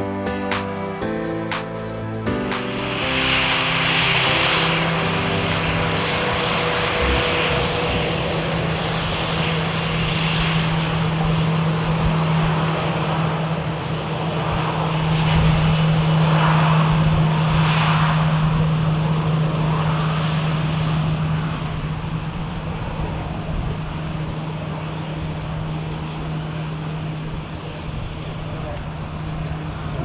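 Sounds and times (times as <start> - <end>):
jet engines humming: 0.0 - 11.2.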